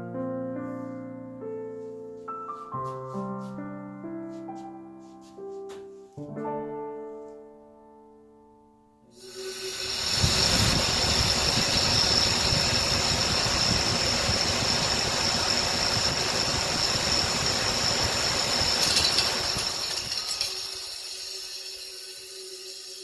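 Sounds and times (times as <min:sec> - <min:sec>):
furnace draft inducer motor whine: 0:09.2 - 0:22.7.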